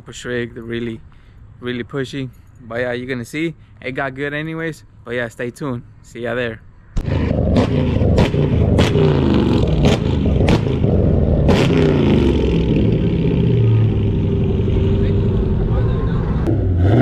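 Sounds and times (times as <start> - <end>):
sharp cracks: 7.0 - 12.5
car engine revving: 7.0 - 17.0.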